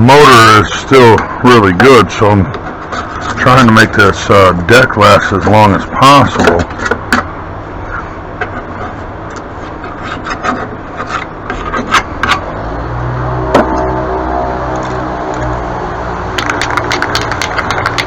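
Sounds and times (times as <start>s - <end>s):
loud vehicle engine running: 12.2s - 18.0s.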